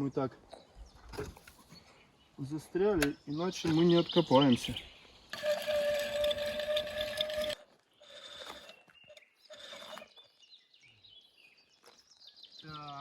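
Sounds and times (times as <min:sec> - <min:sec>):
winch whirring and clicking: 0:05.3 - 0:10.1.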